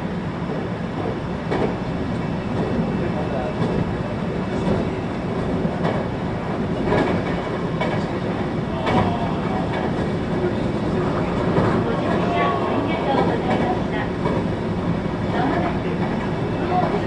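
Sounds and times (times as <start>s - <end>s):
train wheels rumbling on rails: 0.0s - 17.0s
wheels clacking over rail joints: 0.5s - 17.0s.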